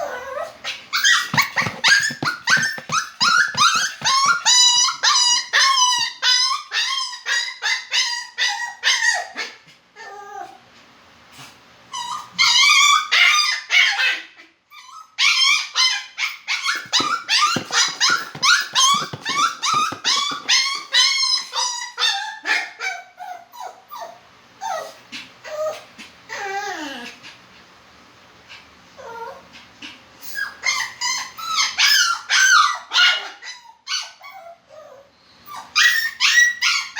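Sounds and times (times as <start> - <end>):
dog whining and yelping: 12.0 - 14.0, 30.2 - 36.9.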